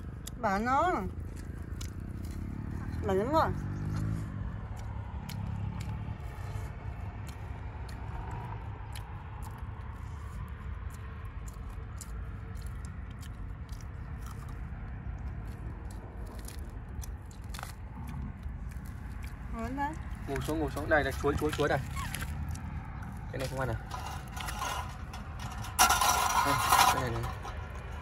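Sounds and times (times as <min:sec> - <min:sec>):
mouths chewing food: 0:00.0 - 0:25.8, 0:26.8 - 0:28.0
low steady rumble: 0:00.0 - 0:28.0.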